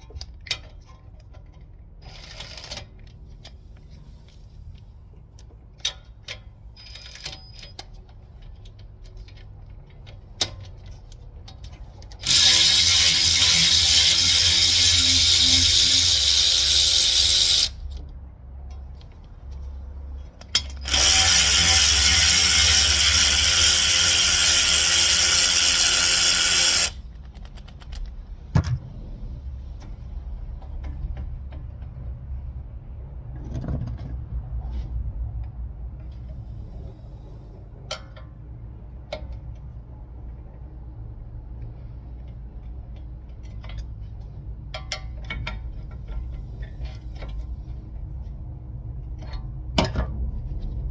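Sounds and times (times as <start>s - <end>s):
handheld power tool running: 12.2s - 17.8s, 20.6s - 27.0s.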